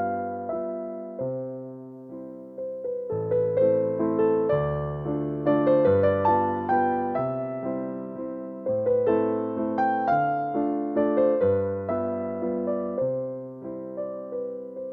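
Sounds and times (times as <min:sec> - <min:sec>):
slow piano chords: 0:00.0 - 0:14.9.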